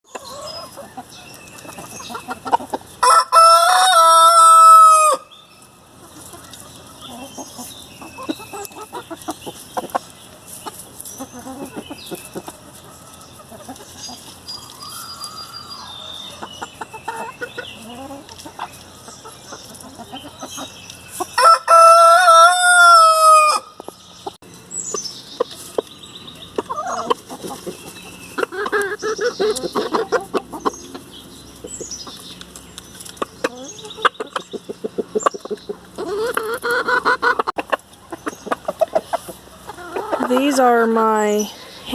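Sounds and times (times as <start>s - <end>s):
hens clucking and chirping: 0.0s - 41.9s
rooster crowing: 3.0s - 5.3s, 21.4s - 23.7s.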